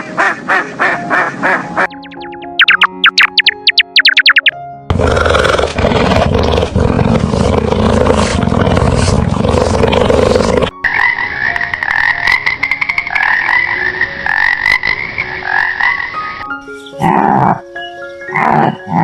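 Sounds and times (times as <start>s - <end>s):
big cat roar: 4.9s - 10.7s.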